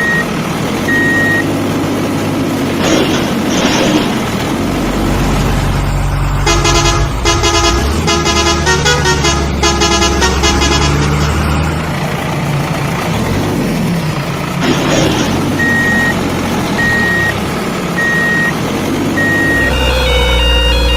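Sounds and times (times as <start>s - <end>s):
truck engine humming: 0.0s - 20.9s
musical truck horn notes: 6.4s - 11.5s, 19.3s - 20.9s.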